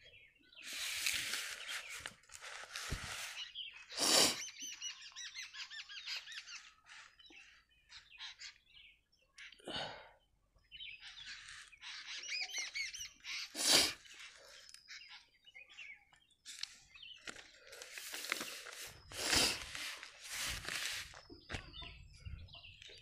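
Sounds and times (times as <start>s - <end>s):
rustling noises: 0.6s - 3.6s, 16.4s - 21.9s
small bird chirping: 3.3s - 9.6s, 10.6s - 23.0s.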